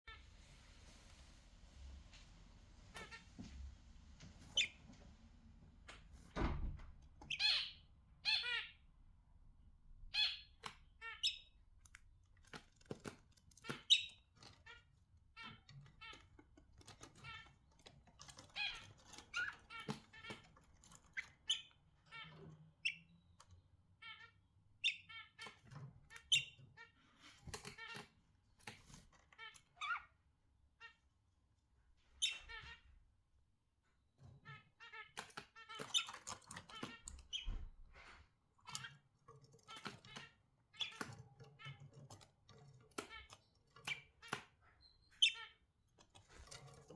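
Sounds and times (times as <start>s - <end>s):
budgerigars chirping: 7.3s - 8.8s, 10.1s - 11.6s, 24.0s - 27.0s, 43.1s - 45.7s.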